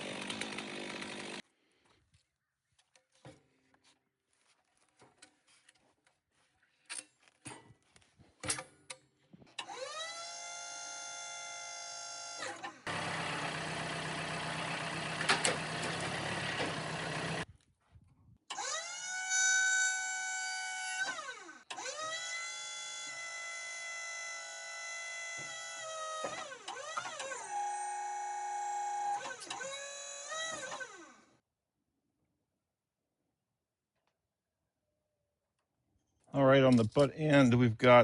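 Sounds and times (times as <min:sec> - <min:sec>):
chainsaw revving and cutting log: 0:00.0 - 0:01.4, 0:12.5 - 0:17.4, 0:24.2 - 0:31.3.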